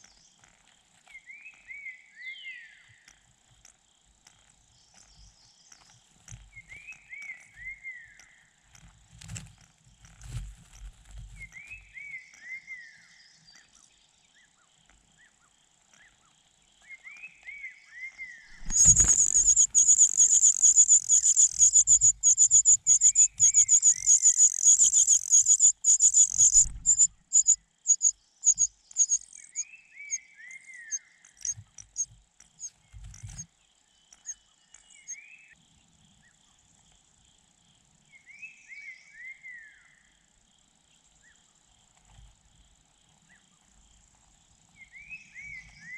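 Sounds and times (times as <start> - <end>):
nestling birds begging calls: 18.5 - 30.2.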